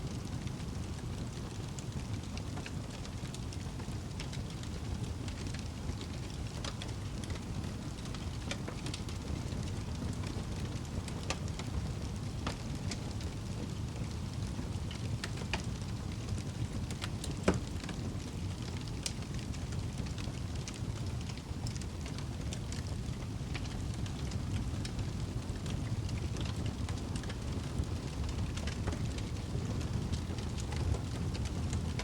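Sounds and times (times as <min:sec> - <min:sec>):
fire burning in fireplace: 0:00.0 - 0:32.0
fire crackling and popping: 0:00.0 - 0:32.0.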